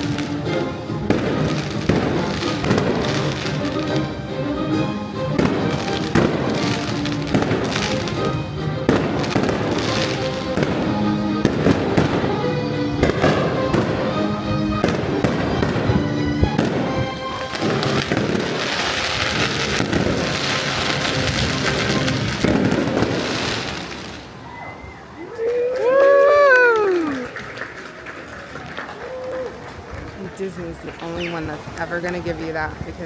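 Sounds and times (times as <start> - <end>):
fireworks bangs and crackles: 0.0 - 24.3.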